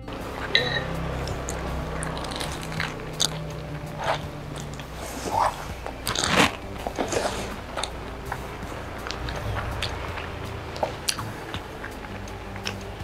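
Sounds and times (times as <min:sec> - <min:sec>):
crunching of crispy food being chewed: 0:00.3 - 0:13.0.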